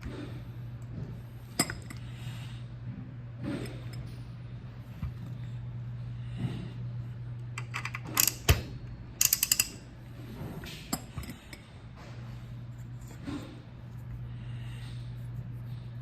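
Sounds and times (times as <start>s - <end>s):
steady low hum: 0.0s - 16.0s
metal parts clinking and knocking: 9.2s - 9.8s
ratchet clicks: 9.2s - 9.8s.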